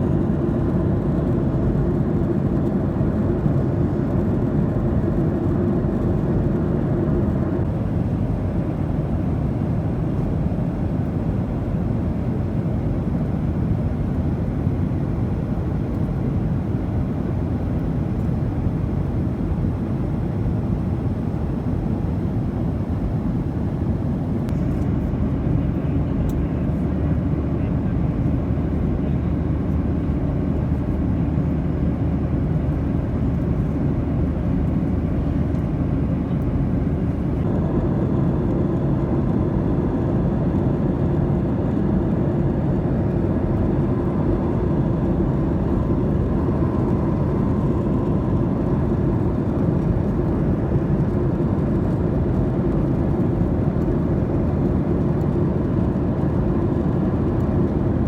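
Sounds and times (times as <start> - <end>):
jet engine and air rush: 7.6 - 24.5, 44.5 - 50.9
faint steady whine: 7.6 - 24.8, 43.4 - 58.0.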